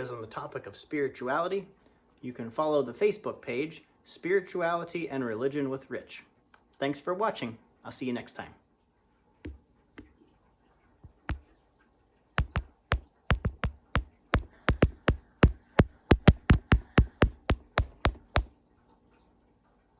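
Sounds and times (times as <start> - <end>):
woodpecker pecking wood: 12.4 - 18.5.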